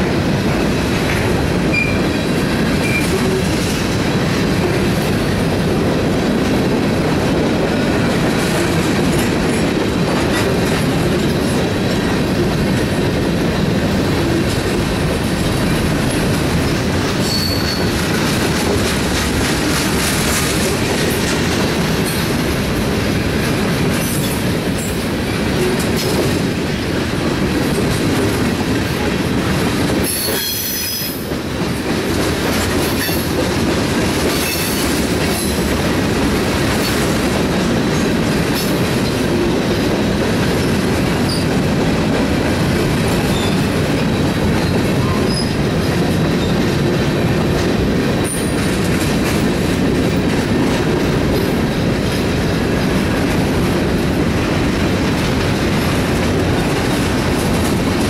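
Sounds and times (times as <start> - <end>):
freight train wheels rumbling: 0.0 - 58.0
high wheel squeal: 17.2 - 17.9.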